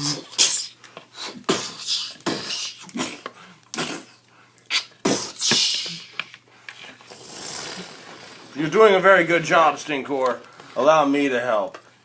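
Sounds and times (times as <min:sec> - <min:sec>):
person making mouth sound effects: 0:00.0 - 0:06.4, 0:07.0 - 0:08.2.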